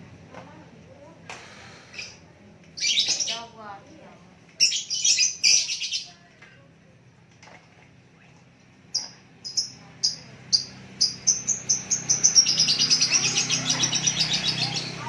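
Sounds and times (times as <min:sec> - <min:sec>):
songbird trilling: 0:09.0 - 0:15.0.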